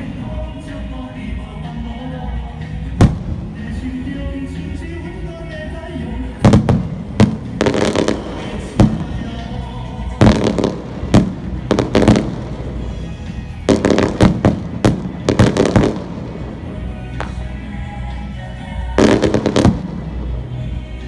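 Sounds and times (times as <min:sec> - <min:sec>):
background music: 0:00.0 - 0:21.0
fireworks bangs and crackles: 0:02.6 - 0:04.4, 0:06.2 - 0:21.0.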